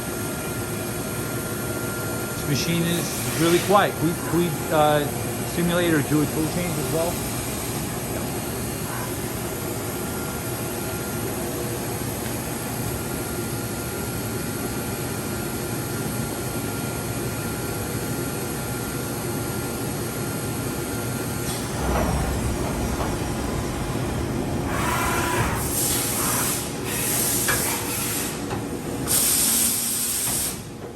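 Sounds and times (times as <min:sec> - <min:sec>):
thin machine whine: 0:00.0 - 0:13.5
machine hum and hiss: 0:00.0 - 0:30.9.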